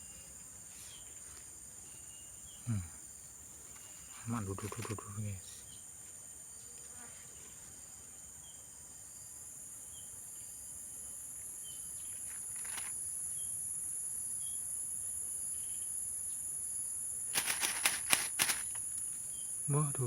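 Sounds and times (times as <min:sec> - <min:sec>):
shrill insect chorus: 0:00.0 - 0:07.1, 0:07.8 - 0:20.0
faint insect chirps: 0:00.0 - 0:20.0
sharp clicks: 0:04.6 - 0:05.0, 0:17.3 - 0:19.0.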